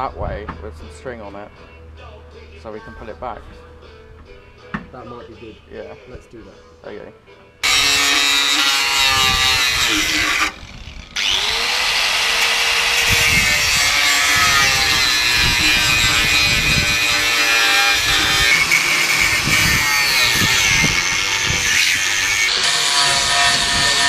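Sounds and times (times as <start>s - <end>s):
power tool sawing with shrill squeal: 7.6s - 24.0s.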